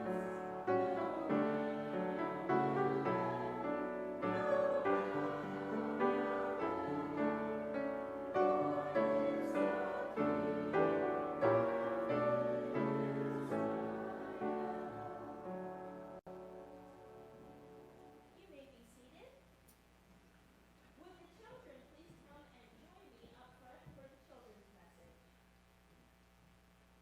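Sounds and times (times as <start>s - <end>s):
slow piano music: 0.0s - 18.3s.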